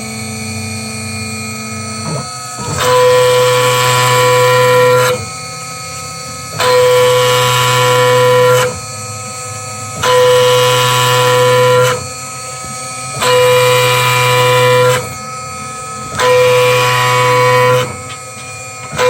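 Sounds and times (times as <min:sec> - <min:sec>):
cnc router cutting: 0:00.0 - 0:19.0
spindle hum: 0:00.0 - 0:19.0.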